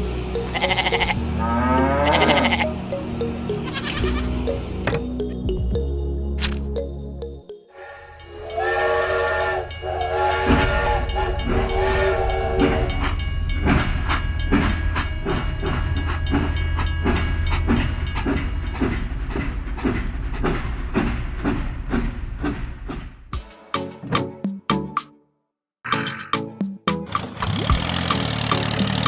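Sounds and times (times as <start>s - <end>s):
train whistle blasts: 7.8s - 13.2s
train wheels clickety-clack: 8.2s - 23.4s.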